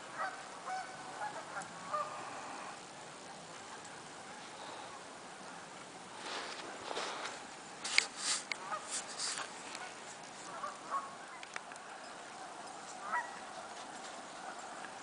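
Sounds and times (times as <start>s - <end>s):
background hiss: 0.0s - 15.0s
geese honking: 0.1s - 2.8s, 8.1s - 15.0s.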